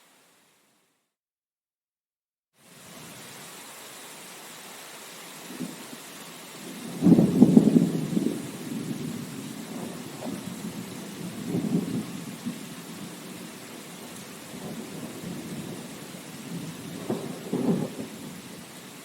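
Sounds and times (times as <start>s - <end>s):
rain hiss: 0.0s - 0.9s, 2.6s - 19.0s
thunder rumbling: 6.6s - 18.7s.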